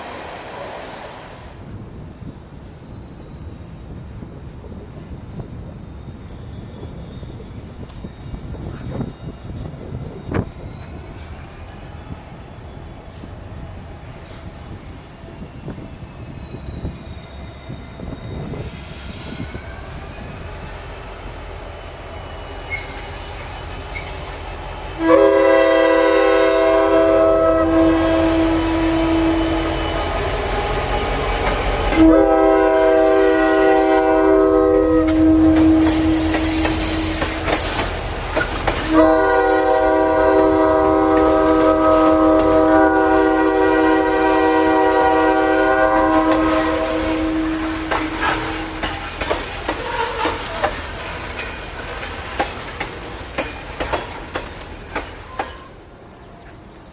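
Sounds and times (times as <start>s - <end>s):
passing train rumble: 0.0s - 56.9s
locomotive air horn blasts: 25.0s - 30.7s, 31.9s - 37.4s, 38.8s - 48.9s.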